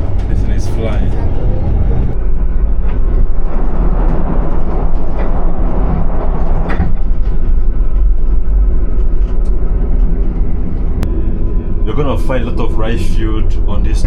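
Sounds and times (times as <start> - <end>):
train clatters: 0.0 - 11.1
train wheels rumbling on rails: 0.0 - 14.0.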